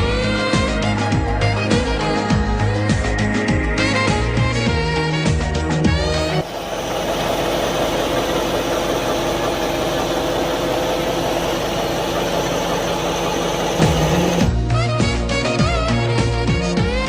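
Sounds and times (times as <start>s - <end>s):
truck machinery humming: 6.0s - 14.6s.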